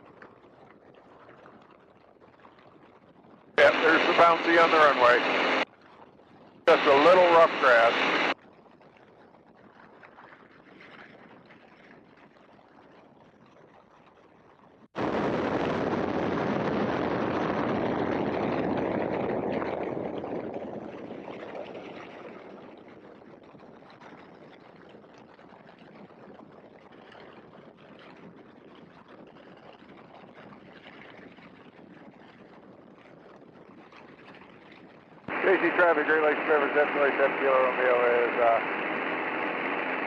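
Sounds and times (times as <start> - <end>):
biplane engine and wind rush: 2.5 - 8.4, 15.0 - 40.0.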